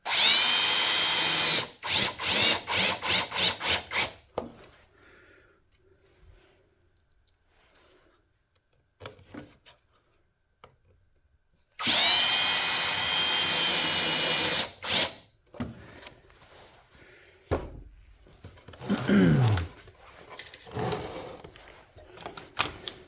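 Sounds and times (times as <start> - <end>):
power tool motor whine: 0.1 - 4.1, 11.8 - 15.2.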